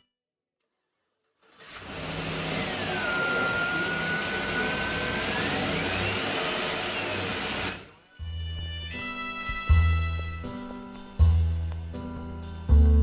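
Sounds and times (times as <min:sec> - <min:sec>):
engine idling drone: 0:01.8 - 0:07.9
thin whistle: 0:02.6 - 0:09.8.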